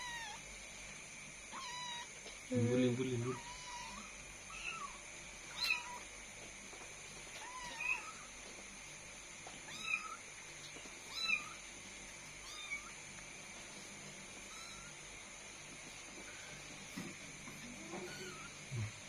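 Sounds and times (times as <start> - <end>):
kittens mewing: 0.0 - 0.4, 3.3 - 6.1, 17.7 - 19.0.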